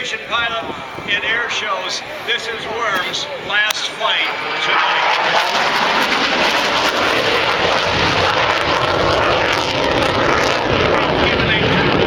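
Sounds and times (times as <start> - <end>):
jet engines roaring: 0.0 - 12.0
low rumble: 4.3 - 12.0.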